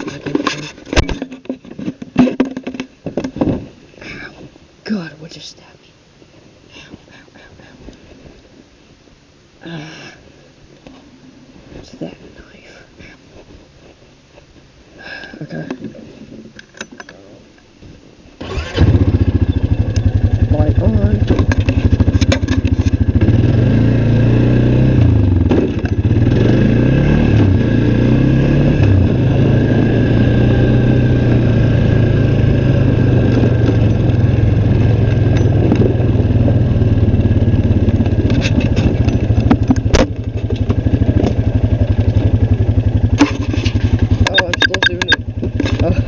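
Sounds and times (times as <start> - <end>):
engine idling: 18.4 - 23.3
sharp click: 44.2 - 45.2.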